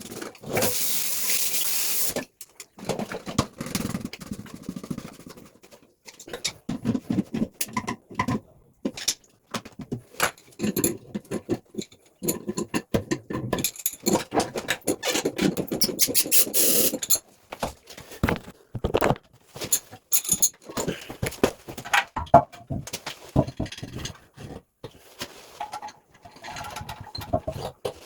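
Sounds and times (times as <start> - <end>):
loud hiss: 0.6 - 2.2, 16.3 - 17.0
tools clicking and scraping: 10.2 - 17.2, 19.6 - 21.1.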